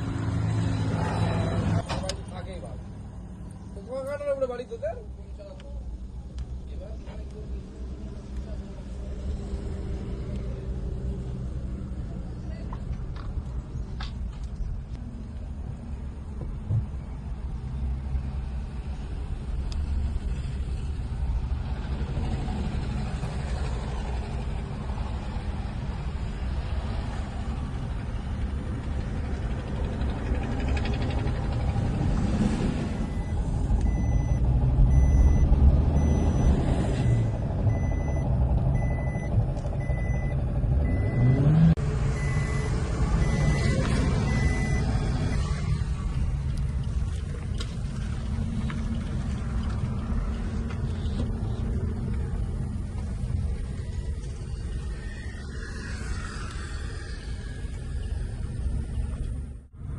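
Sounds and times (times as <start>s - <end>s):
car engine rumbling: 0.0s - 59.9s
short high electronic beeps: 38.8s - 41.4s, 42.2s - 44.9s.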